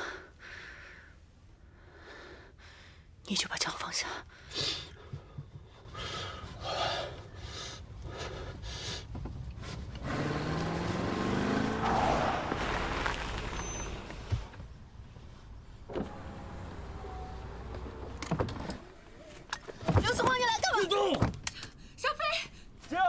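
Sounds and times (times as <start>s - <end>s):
car driving by: 9.8s - 14.6s.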